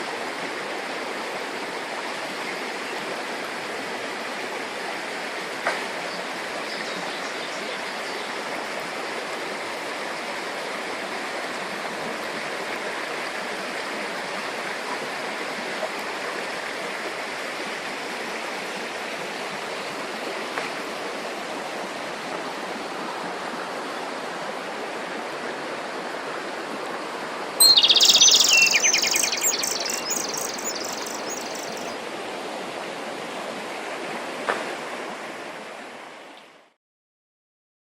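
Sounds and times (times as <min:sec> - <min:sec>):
flowing stream: 0:00.0 - 0:36.8
bird chirping song: 0:27.6 - 0:31.9.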